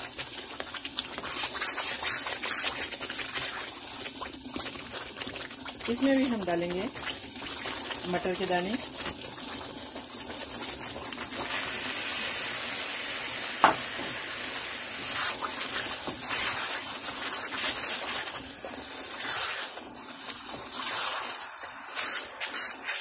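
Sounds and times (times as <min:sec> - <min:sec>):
spatula stirring and scraping: 0:00.0 - 0:12.0, 0:15.0 - 0:23.0
paste sizzling in a wok: 0:00.0 - 0:23.0
sharp knock: 0:13.6 - 0:13.8.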